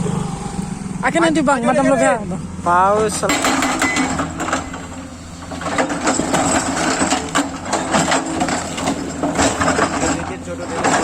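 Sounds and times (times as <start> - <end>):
excavator diesel engine running: 3.3 - 11.0.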